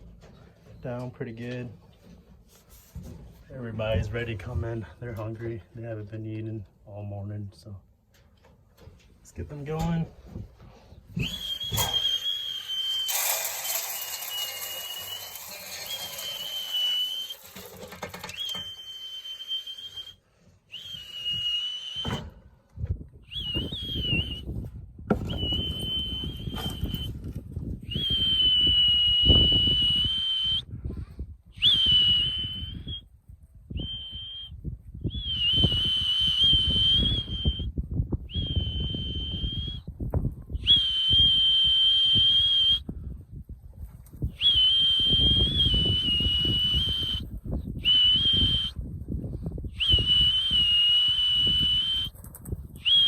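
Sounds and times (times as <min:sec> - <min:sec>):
whistle blasts: 0:11.2 - 0:22.3, 0:23.3 - 0:24.5, 0:25.2 - 0:27.2, 0:27.9 - 0:30.6, 0:31.6 - 0:33.0, 0:33.8 - 0:37.7, 0:38.3 - 0:39.9, 0:40.6 - 0:42.9, 0:44.4 - 0:48.8, 0:49.8 - 0:52.1.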